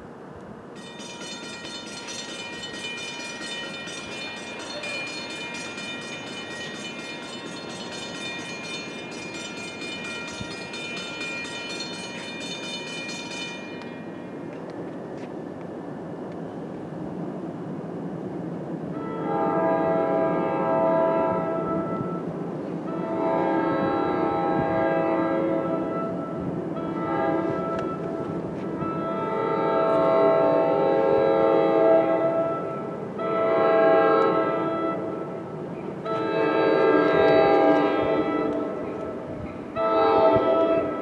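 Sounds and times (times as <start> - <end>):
train rumble: 0.0 - 41.0.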